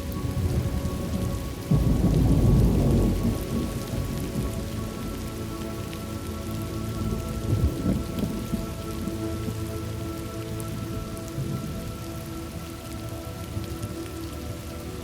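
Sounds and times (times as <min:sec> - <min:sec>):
soft background drone: 0:00.0 - 0:15.0
steady rain falling: 0:00.0 - 0:15.0
low rolling thunder: 0:00.2 - 0:09.6, 0:10.6 - 0:12.9.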